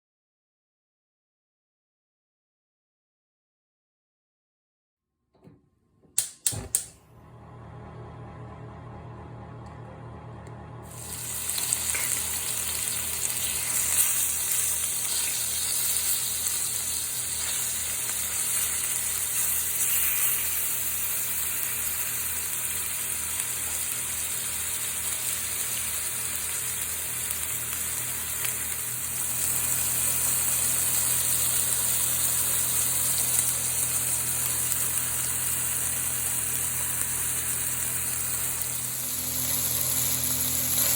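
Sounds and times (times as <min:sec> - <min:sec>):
clicks: 0:05.3 - 0:07.0
steady low hum: 0:06.2 - 0:14.6
food sizzling in a hot pan: 0:10.9 - 0:40.9.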